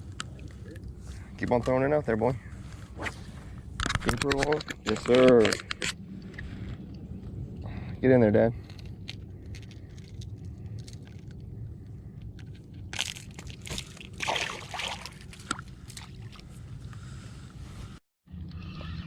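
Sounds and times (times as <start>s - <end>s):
steady low rumble: 0.0s - 19.0s
water splashing against a boat: 13.7s - 16.8s.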